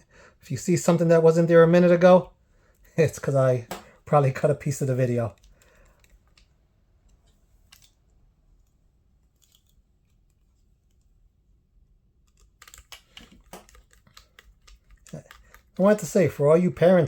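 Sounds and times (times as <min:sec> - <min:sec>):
small tools clicking and tapping: 0:12.3 - 0:15.9.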